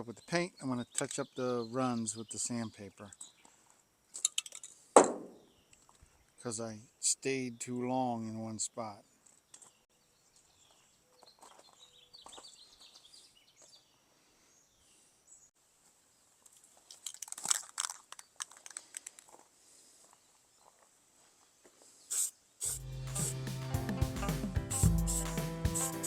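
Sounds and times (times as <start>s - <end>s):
crinkling and scraping handling: 16.5s - 19.5s
rasping strokes: 22.1s - 26.0s.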